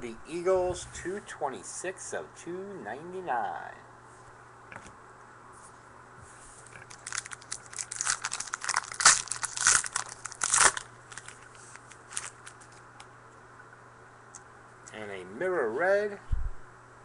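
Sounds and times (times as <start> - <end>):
card pack wrapper tearing: 6.8 - 12.8.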